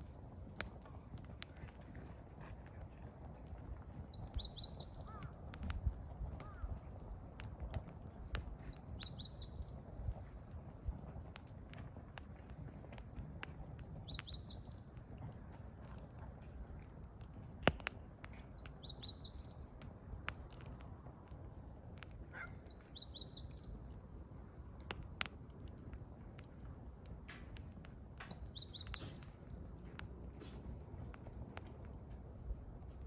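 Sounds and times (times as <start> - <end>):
songbird singing: 0.0 - 0.4, 3.9 - 5.7, 8.4 - 10.3, 13.6 - 15.2, 18.3 - 20.0, 22.3 - 24.2, 28.1 - 30.0
wood campfire crackling: 0.0 - 33.0.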